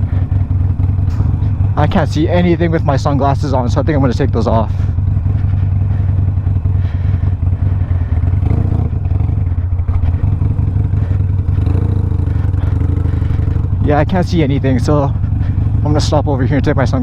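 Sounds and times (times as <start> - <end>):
motorcycle engine rumble: 0.0 - 17.0.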